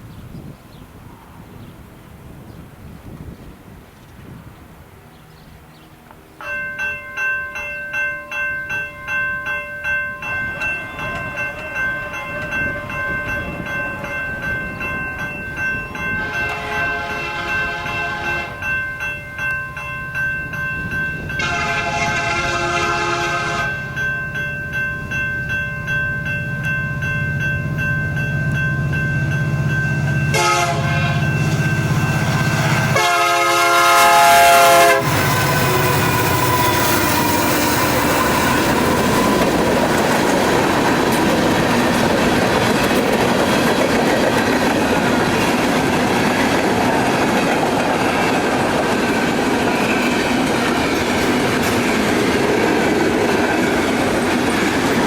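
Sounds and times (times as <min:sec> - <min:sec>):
locomotive engine and rail rumble: 0:00.0 - 0:55.0
crossing signal bell ringing: 0:06.4 - 0:55.0
locomotive horn blasts: 0:16.1 - 0:18.7, 0:21.4 - 0:24.0, 0:30.3 - 0:37.8.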